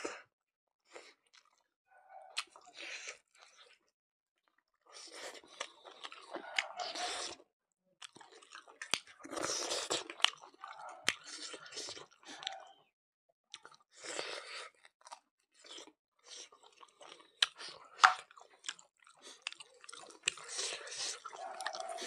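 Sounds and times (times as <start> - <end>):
person chewing food: 0.8 - 7.4, 8.0 - 12.8, 13.5 - 22.0.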